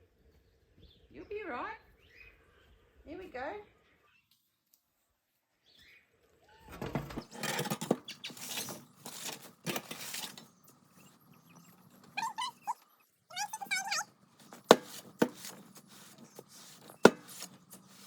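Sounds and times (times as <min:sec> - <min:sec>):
rustling and scraping handling: 0:06.8 - 0:12.7, 0:13.4 - 0:18.0
puppy whining: 0:11.6 - 0:14.1.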